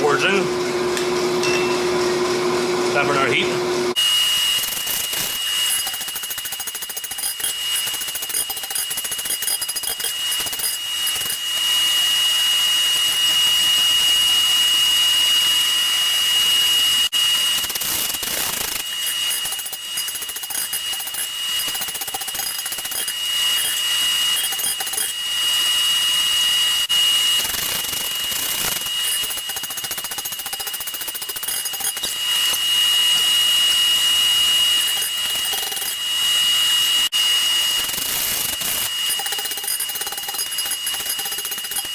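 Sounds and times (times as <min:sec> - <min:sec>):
forge air blower whining: 0:00.0 - 0:41.9.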